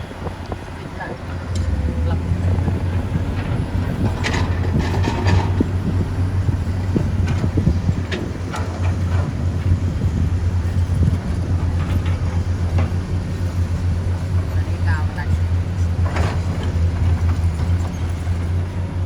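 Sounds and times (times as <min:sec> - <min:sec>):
excavator diesel engine droning: 0:00.0 - 0:19.0
machine knocks and clanks: 0:01.5 - 0:15.0.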